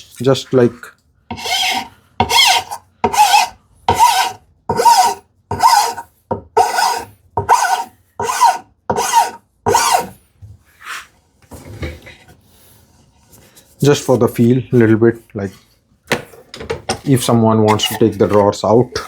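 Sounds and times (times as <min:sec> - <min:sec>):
hand plane shaving wood: 0:01.3 - 0:06.0, 0:06.6 - 0:10.2, 0:17.7 - 0:19.0.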